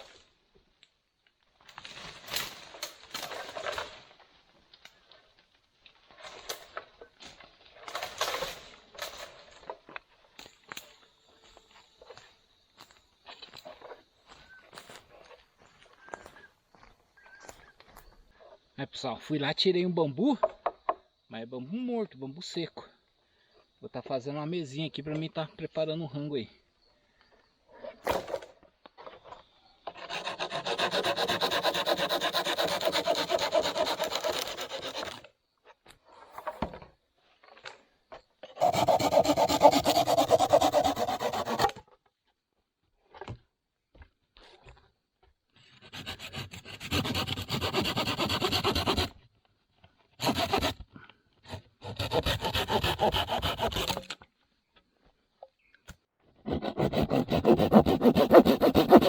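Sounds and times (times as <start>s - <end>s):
hand saw cutting dry bamboo: 29.9s - 35.2s, 38.6s - 41.8s, 45.7s - 49.2s, 50.2s - 50.8s, 51.5s - 54.2s, 56.4s - 59.0s.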